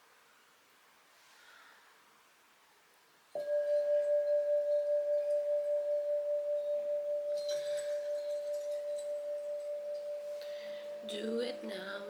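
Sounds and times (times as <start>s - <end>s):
bell-like note ringing: 3.4s - 12.0s.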